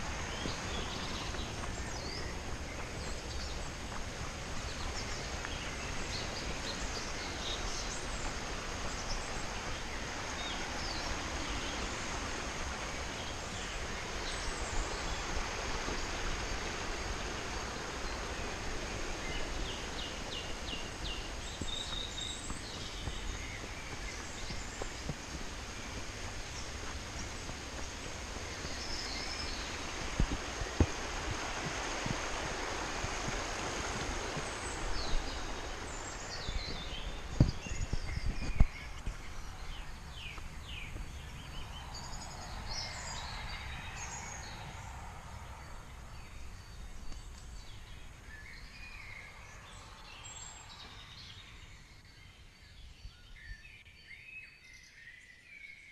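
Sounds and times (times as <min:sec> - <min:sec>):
steady rushing noise: 0:00.0 - 0:51.7
songbirds chirping: 0:00.0 - 0:55.9.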